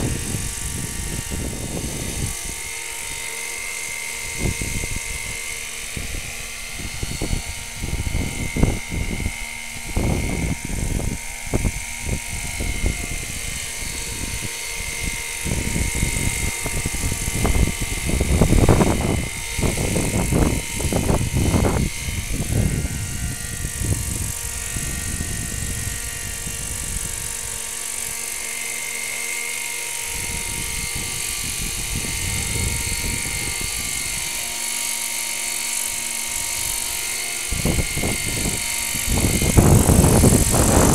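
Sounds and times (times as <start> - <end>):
model aircraft engine whining: 0.0 - 40.9.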